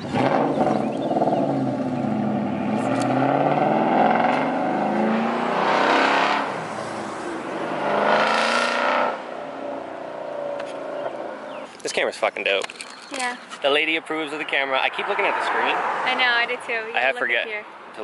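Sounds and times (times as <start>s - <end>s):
car engine revving: 0.0s - 11.7s.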